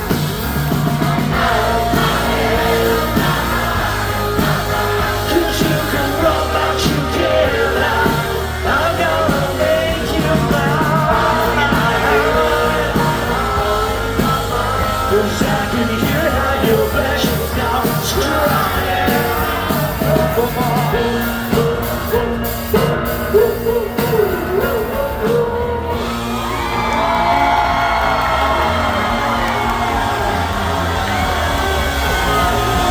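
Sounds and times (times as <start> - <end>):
audience yelling: 0.0 - 32.9
drums: 0.0 - 32.9
live rock band playing: 0.0 - 32.9
person singing: 1.1 - 26.2.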